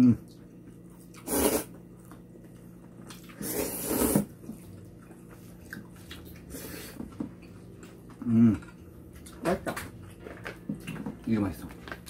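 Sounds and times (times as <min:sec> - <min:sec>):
noodles being slurped: 0:01.2 - 0:01.8, 0:03.1 - 0:04.6.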